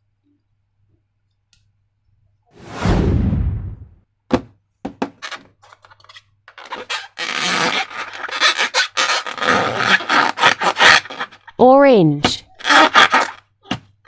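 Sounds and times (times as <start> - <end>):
slime rubbing and scraping: 6.6 - 11.4, 12.3 - 13.4.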